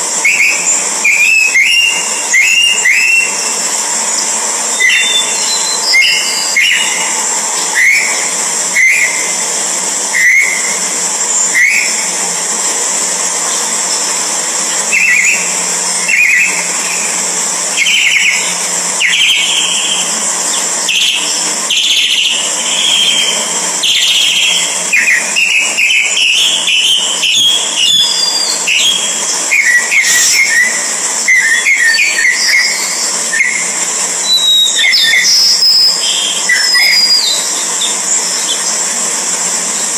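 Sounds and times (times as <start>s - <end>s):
high-pitched drone: 0.0s - 39.9s
birds chirping: 0.2s - 9.4s, 13.4s - 38.9s.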